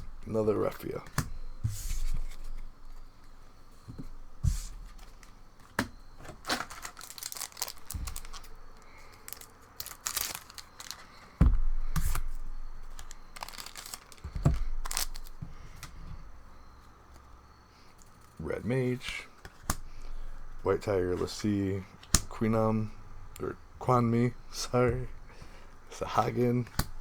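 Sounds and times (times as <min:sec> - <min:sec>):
foil pack tearing and crinkling: 0:06.3 - 0:11.3, 0:12.1 - 0:15.4
soft thumps: 0:11.4 - 0:12.3.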